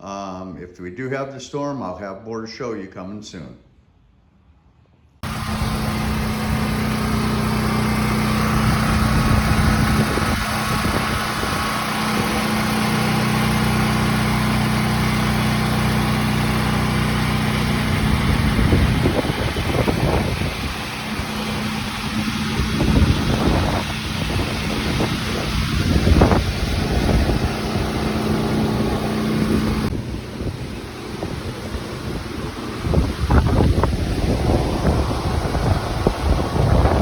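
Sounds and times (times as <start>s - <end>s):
wind noise on microphone: 5.2s - 12.8s, 17.7s - 37.0s
generator engine running: 5.2s - 37.0s.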